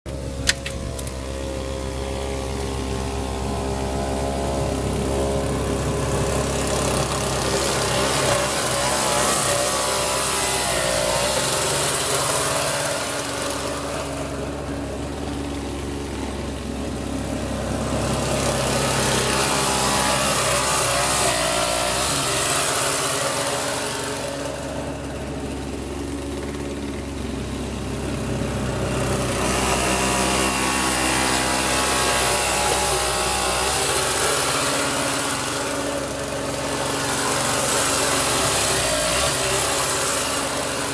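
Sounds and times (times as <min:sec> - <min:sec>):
snowblower engine running: 0:00.1 - 0:40.9.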